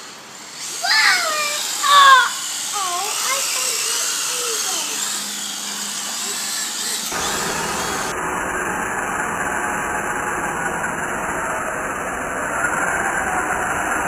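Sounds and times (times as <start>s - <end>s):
electric motors whining: 0.0s - 14.0s
dense rushing noise: 7.1s - 14.0s.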